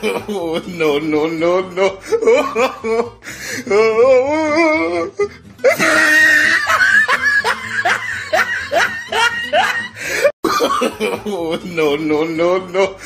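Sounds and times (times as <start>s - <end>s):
music: 0.0s - 13.0s
laughter: 1.8s - 3.2s, 5.6s - 11.9s.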